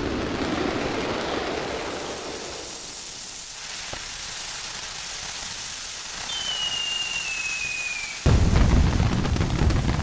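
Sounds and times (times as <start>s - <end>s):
fireworks hiss: 0.0s - 10.0s
firework shell whistle: 5.5s - 8.3s.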